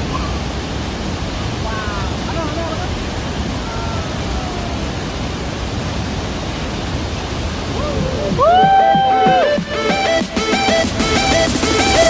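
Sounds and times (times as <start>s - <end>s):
waterfall roaring: 0.0s - 12.0s
music with gliding notes: 8.8s - 12.0s.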